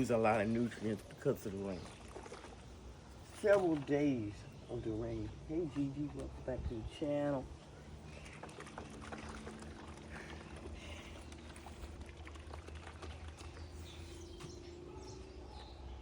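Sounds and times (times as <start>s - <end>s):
water pouring from watering can: 0.0s - 6.6s, 7.9s - 14.4s.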